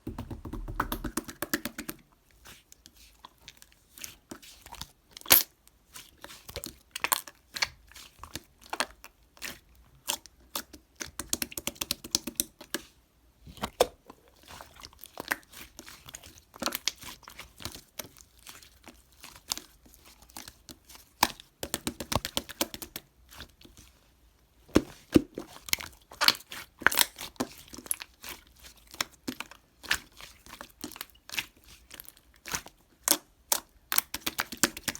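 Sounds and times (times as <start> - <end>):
small taps and clicks: 0.0 - 2.0.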